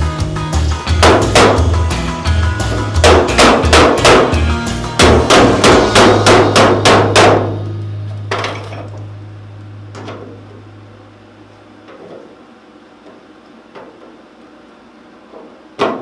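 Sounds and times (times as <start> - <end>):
hammer ringing on sheet steel: 3.0 - 8.8.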